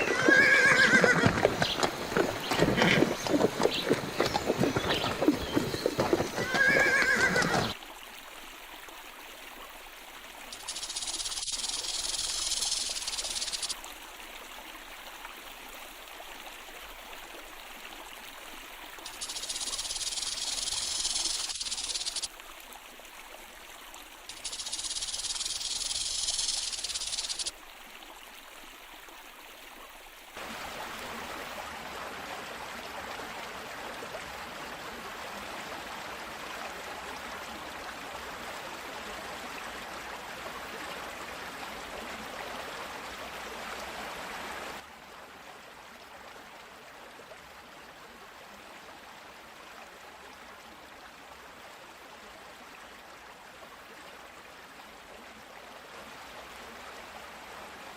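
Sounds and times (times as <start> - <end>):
horse whinnying: 0.0 - 1.6, 6.3 - 7.7
flowing water rushing: 0.0 - 57.9
long high-pitched hisses: 10.5 - 13.8, 19.1 - 22.3, 24.3 - 27.5.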